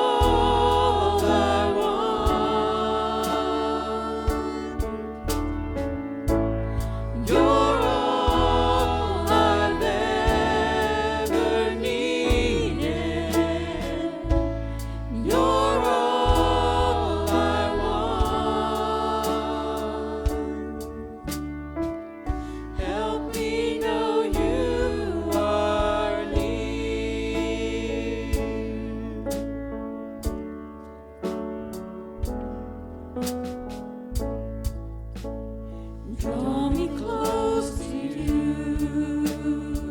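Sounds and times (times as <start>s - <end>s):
voices singing with vibrato: 0.0s - 5.6s, 6.7s - 21.3s, 22.4s - 29.5s, 36.1s - 39.9s
instrumental accompaniment with beat: 0.0s - 27.3s.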